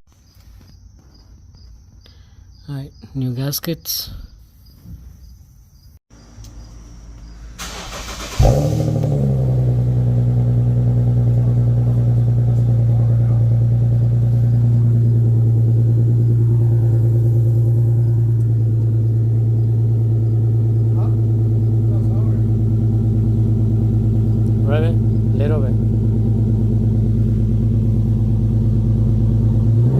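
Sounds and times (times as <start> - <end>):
car engine revving and idling: 6.2 - 29.9.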